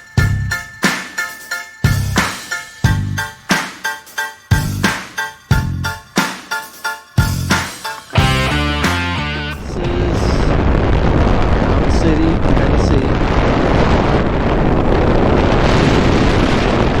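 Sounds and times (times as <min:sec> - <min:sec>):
music: 0:00.0 - 0:10.0
wind rushing over microphone: 0:09.6 - 0:17.0.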